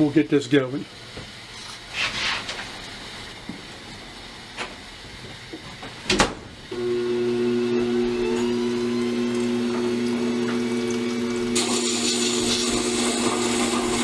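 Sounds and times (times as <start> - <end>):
electric motor humming: 6.7 - 14.0.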